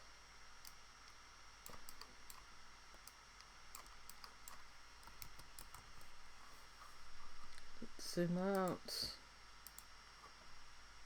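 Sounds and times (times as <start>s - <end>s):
low steady hiss: 0.0s - 11.0s
mouse and keyboard clicking: 1.7s - 3.2s, 3.8s - 6.1s.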